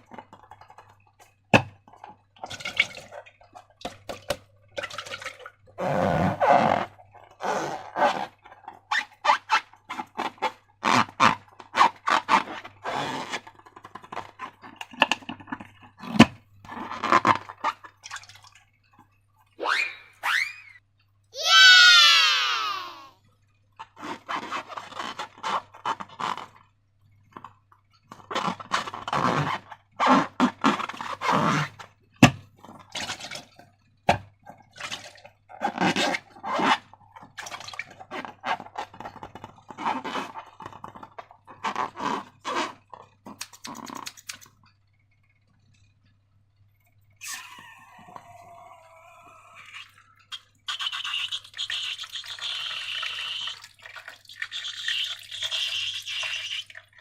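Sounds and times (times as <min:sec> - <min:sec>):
rubbery squeak: 0:05.8 - 0:17.9, 0:19.6 - 0:20.8, 0:24.0 - 0:26.6, 0:28.3 - 0:32.4, 0:35.5 - 0:44.4, 0:49.8 - 0:53.6.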